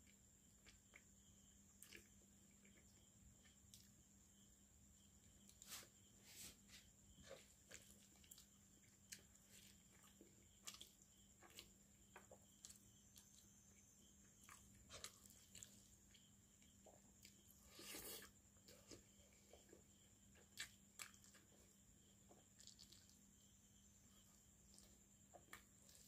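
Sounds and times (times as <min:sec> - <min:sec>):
person chewing food: 0:00.0 - 0:04.0, 0:07.2 - 0:26.0
faint electrical hum: 0:00.0 - 0:26.0.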